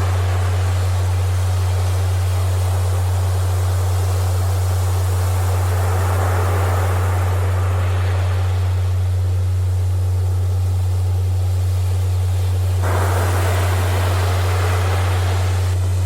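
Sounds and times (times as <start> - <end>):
ocean surf: 0.0 - 9.7, 12.8 - 16.0
loud low hum tone: 0.0 - 16.0.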